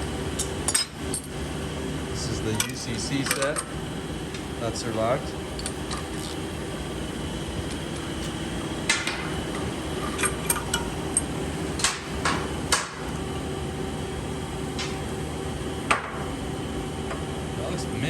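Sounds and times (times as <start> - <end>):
steady shop hum: 0.0 - 18.0.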